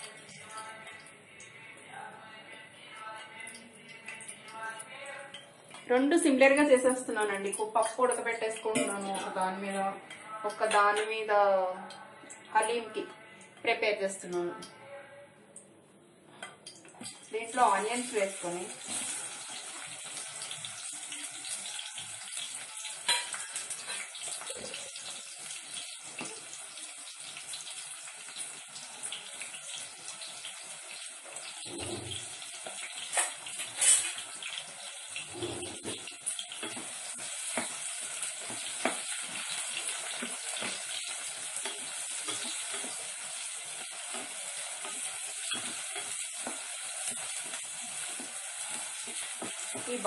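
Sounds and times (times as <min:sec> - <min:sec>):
onions sizzling in a pan: 0:17.1 - 0:50.0.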